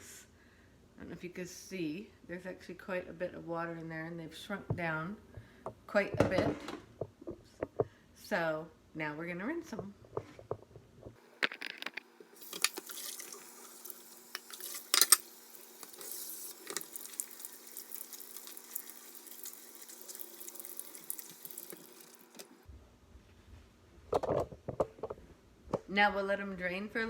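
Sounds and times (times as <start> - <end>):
tap water running into sink: 12.4 - 22.5.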